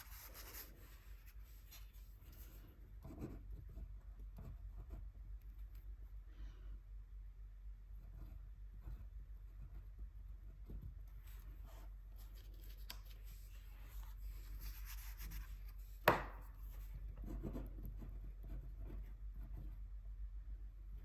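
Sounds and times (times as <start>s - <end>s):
paintbrush scratching on paper: 0.0s - 5.1s, 10.7s - 16.0s.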